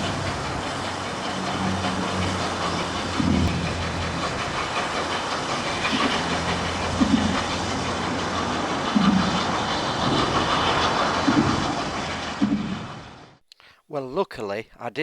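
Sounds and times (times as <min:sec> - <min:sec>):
low bursts: 0:00.0 - 0:13.4
steam locomotive hissing: 0:00.0 - 0:13.4.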